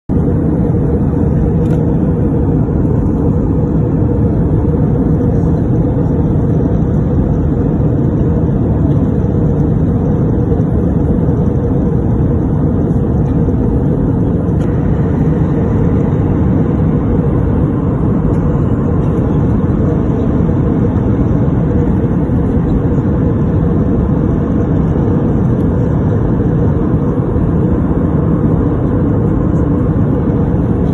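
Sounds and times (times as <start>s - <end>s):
airplane cabin drone: 0.0s - 30.9s.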